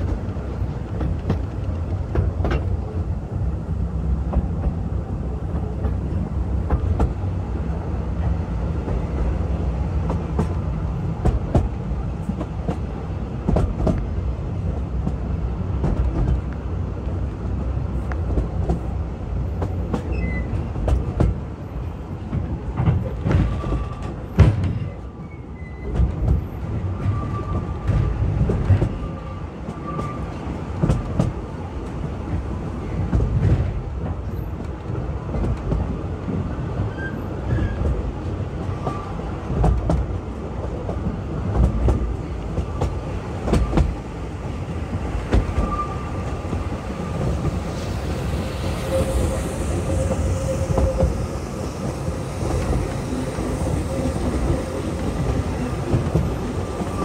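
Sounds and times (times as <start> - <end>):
train rumbling on track: 0.0 - 57.0
faint high squeal: 20.1 - 20.6, 25.0 - 26.0, 45.6 - 52.1.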